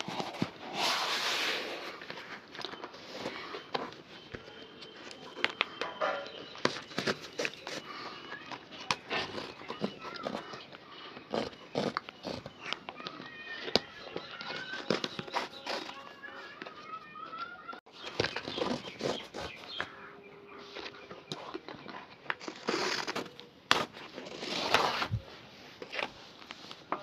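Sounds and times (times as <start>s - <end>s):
faint birds chirping: 0.1s - 27.0s
brushing strokes: 0.6s - 2.0s.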